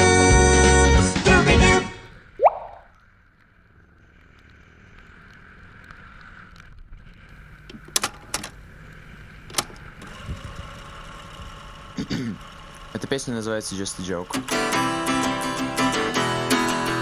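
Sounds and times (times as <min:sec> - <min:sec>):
road and wind noise: 0:02.7 - 0:11.7.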